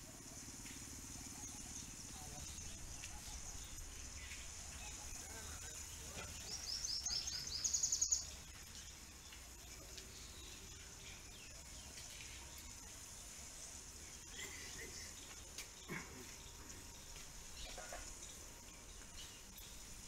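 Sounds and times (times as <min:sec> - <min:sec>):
faint steady hiss: 0:00.0 - 0:20.0
bird chirping rapidly: 0:05.8 - 0:08.5.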